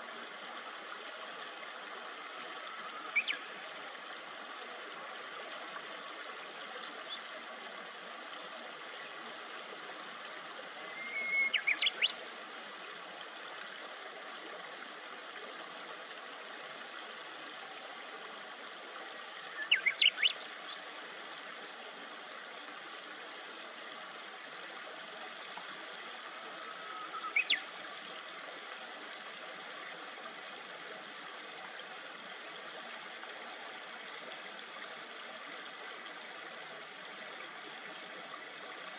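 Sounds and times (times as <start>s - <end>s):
shallow river babbling: 0.0s - 38.9s
songbird chirping: 26.7s - 27.7s.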